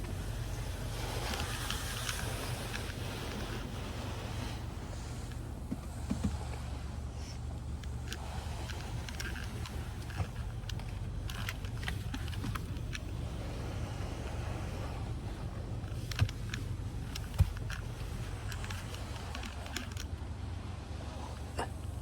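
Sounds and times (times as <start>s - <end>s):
car wash rumble: 0.0s - 22.0s.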